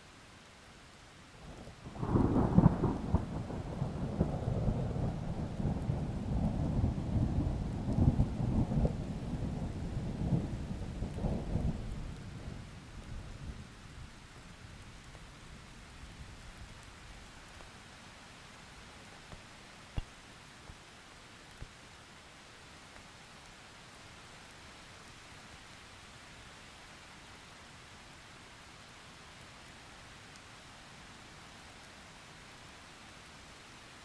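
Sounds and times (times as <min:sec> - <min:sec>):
steady rain: 0:00.0 - 0:34.0
thunder rumbling: 0:02.0 - 0:12.7.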